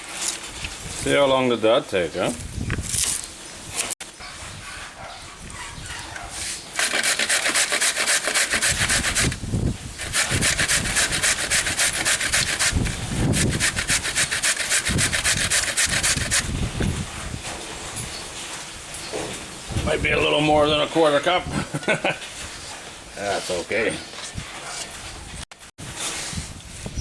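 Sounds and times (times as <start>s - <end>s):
carrot grated on metal grater: 6.8s - 16.6s.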